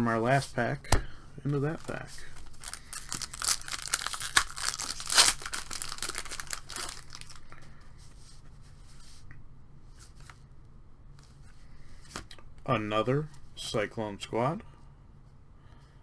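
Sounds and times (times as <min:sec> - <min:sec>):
wrapper tearing and crinkling: 0:01.8 - 0:07.5.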